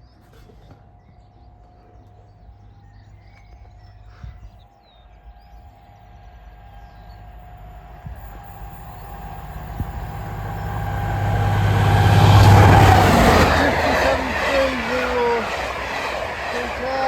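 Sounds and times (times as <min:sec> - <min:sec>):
steady locomotive whine: 0:05.0 - 0:17.0
train rumble: 0:05.6 - 0:17.0.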